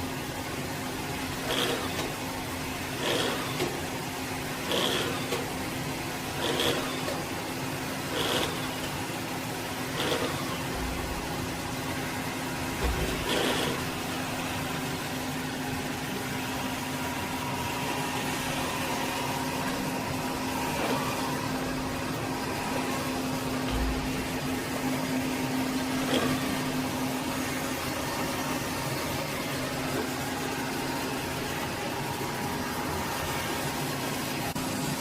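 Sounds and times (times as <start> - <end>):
robot vacuum motor whirring: 1.4 - 2.2, 3.0 - 3.8, 4.6 - 5.6, 6.3 - 7.3, 7.9 - 9.0, 9.9 - 11.0, 12.8 - 14.0, 17.6 - 24.6, 25.9 - 26.8.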